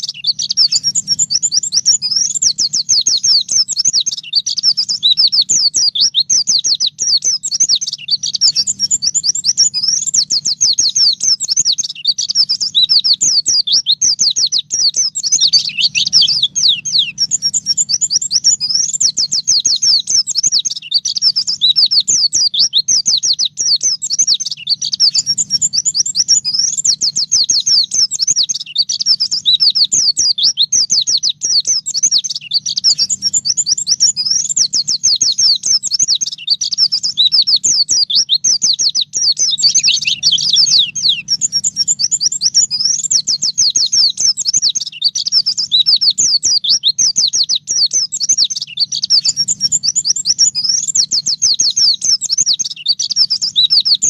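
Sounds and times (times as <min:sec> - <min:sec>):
bird singing high chirps: 0:00.0 - 0:54.0
faint low hum: 0:00.4 - 0:03.8, 0:14.2 - 0:20.0.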